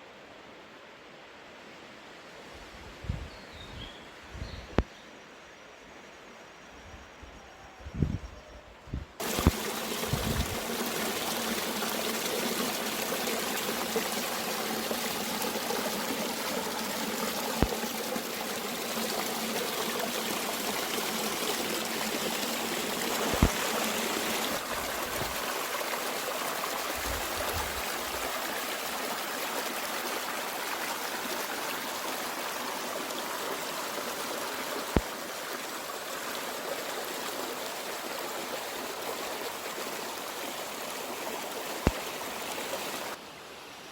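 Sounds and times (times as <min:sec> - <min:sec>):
stream rushing: 0:09.2 - 0:43.5.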